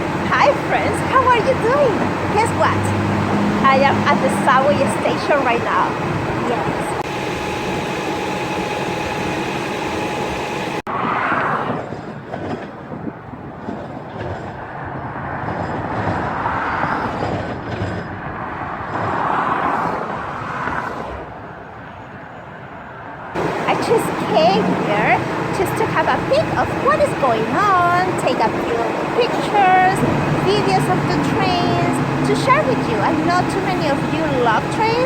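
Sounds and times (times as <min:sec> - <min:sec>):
rail rumble: 0:00.0 - 0:10.9, 0:23.4 - 0:35.0
subway train hum: 0:00.0 - 0:10.9, 0:22.7 - 0:35.0.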